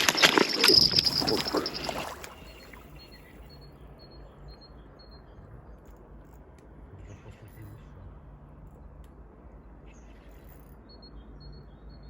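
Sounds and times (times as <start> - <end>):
faint high bird chirps: 0.0 - 6.4.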